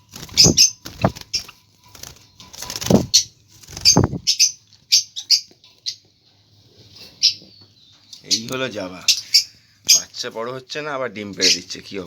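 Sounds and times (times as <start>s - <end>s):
wings fluttering: 0.0s - 4.5s
parrots chirping: 0.0s - 6.1s, 7.1s - 10.2s.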